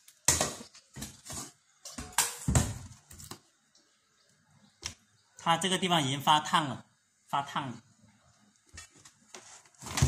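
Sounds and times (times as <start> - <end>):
rice cooker handling knocks and scrapes: 9.7 - 10.0.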